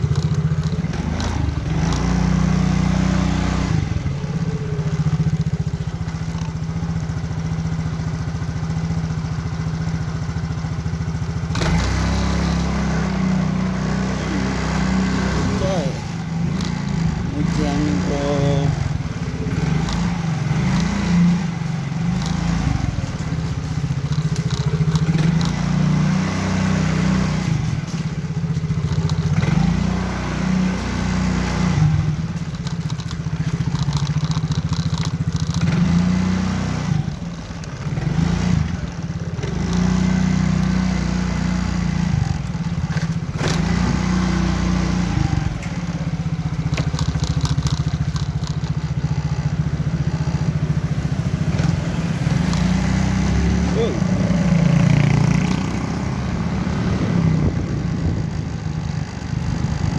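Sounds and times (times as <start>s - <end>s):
engine crackles: 0.0s - 59.9s
motorcycle engine revving: 0.0s - 59.9s.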